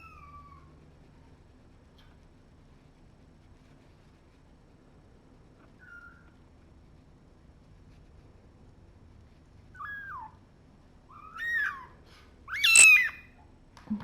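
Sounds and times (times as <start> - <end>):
kitten meowing: 9.8 - 10.4, 11.1 - 11.9, 12.5 - 13.4.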